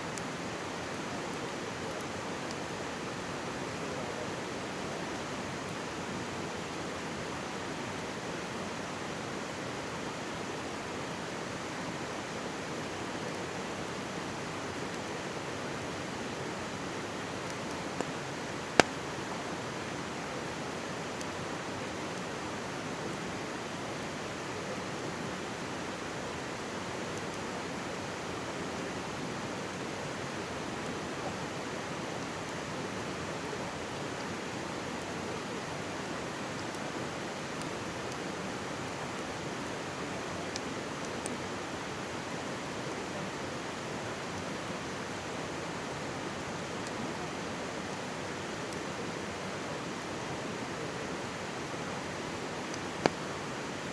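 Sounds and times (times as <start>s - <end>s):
mountain stream rushing: 0.0s - 53.9s
campfire wood crackling: 16.3s - 19.5s, 51.6s - 53.9s.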